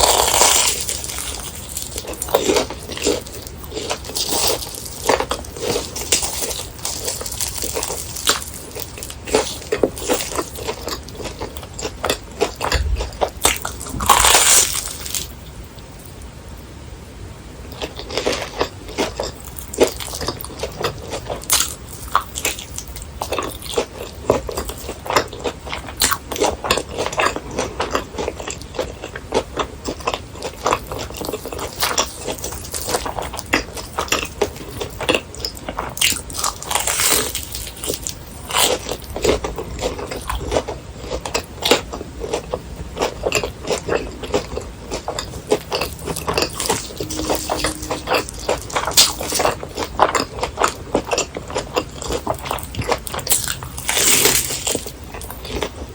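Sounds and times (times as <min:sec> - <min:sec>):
crunchy biting and chewing: 0:00.0 - 0:15.5, 0:17.7 - 0:55.9.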